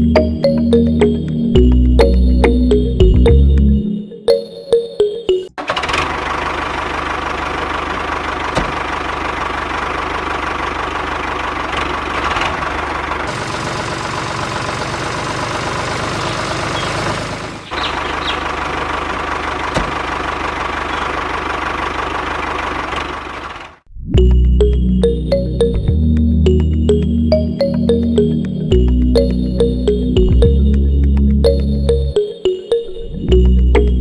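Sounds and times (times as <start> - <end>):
motor running steadily: 5.8 - 23.8.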